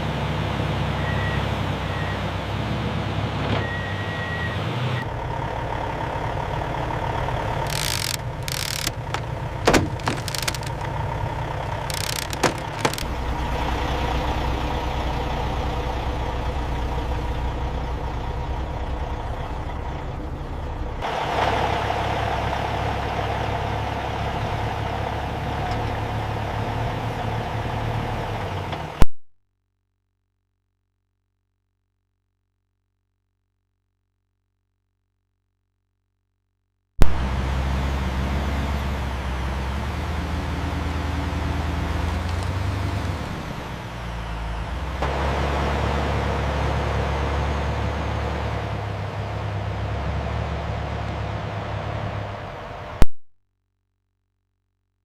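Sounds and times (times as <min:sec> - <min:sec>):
heavy machine engine running: 0:00.0 - 0:29.0, 0:37.0 - 0:53.0
sharp cracks: 0:07.7 - 0:11.0, 0:11.6 - 0:13.2.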